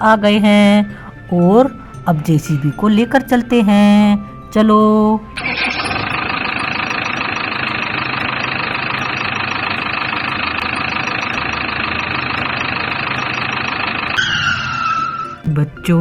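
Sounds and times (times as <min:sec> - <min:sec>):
backhoe loader engine running: 0:05.4 - 0:15.5.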